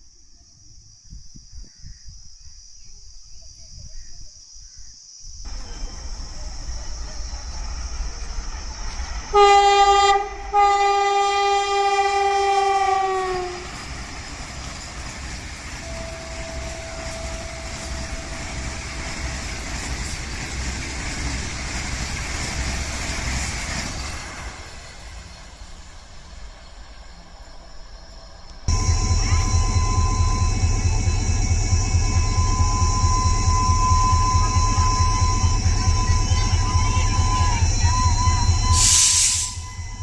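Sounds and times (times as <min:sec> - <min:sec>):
train rushing past: 0:05.5 - 0:40.0
train horn blasts: 0:09.3 - 0:13.7, 0:15.8 - 0:19.4, 0:28.7 - 0:40.0.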